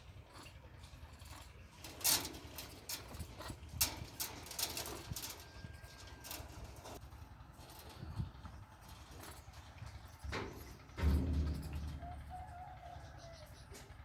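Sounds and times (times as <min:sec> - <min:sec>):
low rumble: 0:10.0 - 0:13.2
sharp clicks and knocks: 0:10.2 - 0:12.4.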